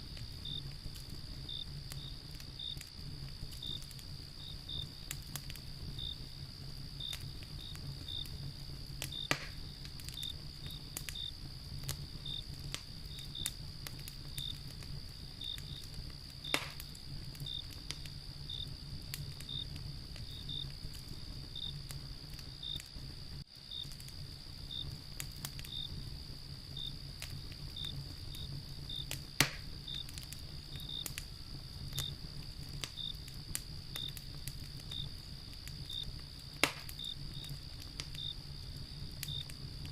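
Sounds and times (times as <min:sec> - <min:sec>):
crickets chirping: 0:00.0 - 0:39.9
fire pops: 0:00.0 - 0:39.9
wood fire crackling: 0:00.0 - 0:39.9.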